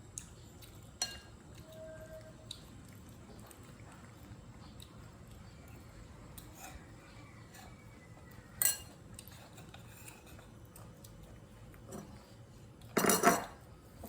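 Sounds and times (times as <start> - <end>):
spoon and bowl clatter: 1.0 - 1.9, 8.6 - 10.9, 12.9 - 13.6
spoon clinking on bowl: 8.6 - 9.0.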